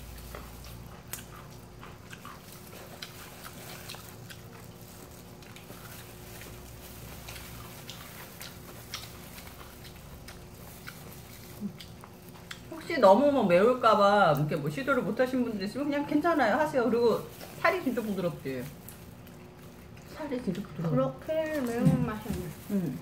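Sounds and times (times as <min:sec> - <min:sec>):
small crunches: 0:00.0 - 0:12.8, 0:17.0 - 0:23.0
people biting and chewing: 0:00.0 - 0:12.9, 0:17.2 - 0:20.9.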